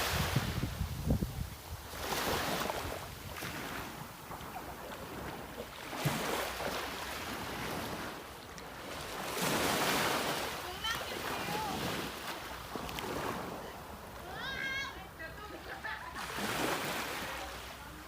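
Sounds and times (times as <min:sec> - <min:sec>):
wind on microphone: 0:00.0 - 0:06.2
sea waves washing in: 0:00.0 - 0:18.0.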